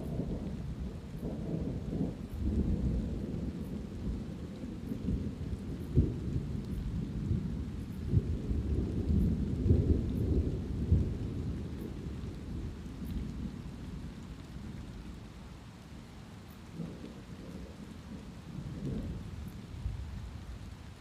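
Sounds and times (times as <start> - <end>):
thunder rumbling: 0.0 - 15.2, 16.7 - 21.0
light rain: 0.0 - 21.0.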